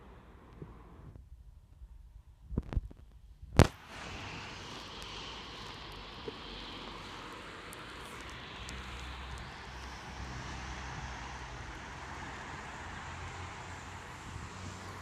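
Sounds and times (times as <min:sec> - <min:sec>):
distant traffic: 0:00.0 - 0:02.1, 0:03.6 - 0:15.0
wind: 0:00.0 - 0:15.0.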